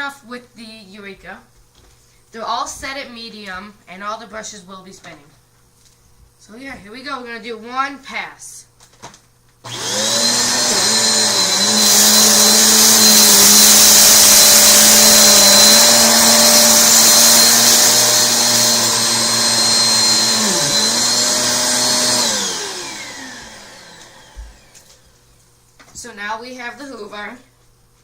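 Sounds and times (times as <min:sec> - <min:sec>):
vacuum motor winding down: 0:09.6 - 0:25.1
vacuum cleaner running: 0:09.6 - 0:25.4.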